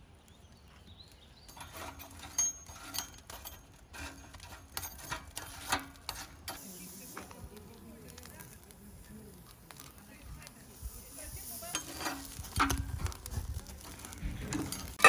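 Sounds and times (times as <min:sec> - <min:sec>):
hard objects clicking and knocking: 0:11.7 - 0:15.0.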